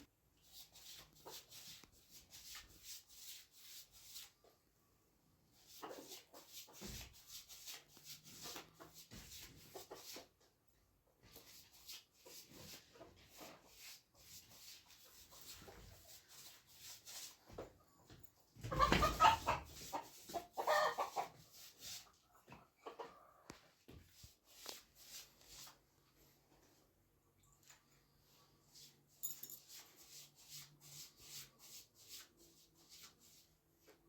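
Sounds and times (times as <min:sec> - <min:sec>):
chickens cackling: 0:18.6 - 0:23.6
chickens clucking: 0:18.6 - 0:23.8
soft scraping strokes: 0:19.5 - 0:34.0.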